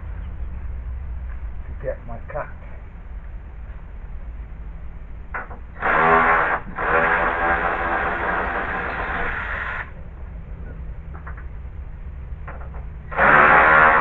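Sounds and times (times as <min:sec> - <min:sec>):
power saw cutting: 0:05.8 - 0:09.9, 0:13.1 - 0:14.0.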